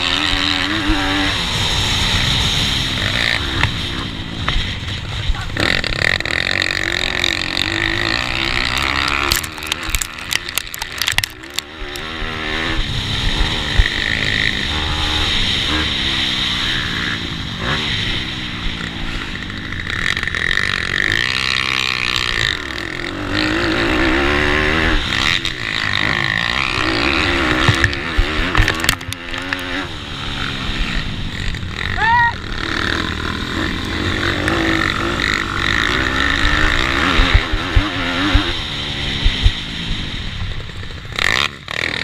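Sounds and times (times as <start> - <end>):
racing motorbike engines revving: 0.0 - 42.0
sharp knocks and crackles: 8.5 - 12.1, 26.7 - 29.7.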